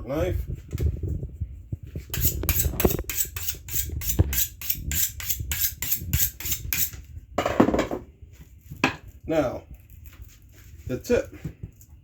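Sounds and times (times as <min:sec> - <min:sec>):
knife sharpening scrapes: 0:02.1 - 0:07.0.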